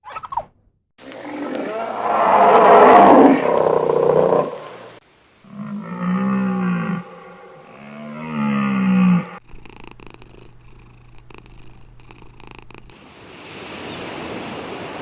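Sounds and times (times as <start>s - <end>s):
steady rushing noise: 1.0s - 5.0s
low animal call: 1.0s - 9.4s
cat purring: 9.4s - 13.0s.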